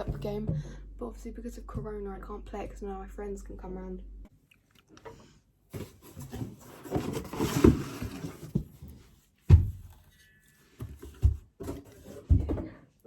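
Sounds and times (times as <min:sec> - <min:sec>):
things being handled rustling: 0:05.2 - 0:12.8.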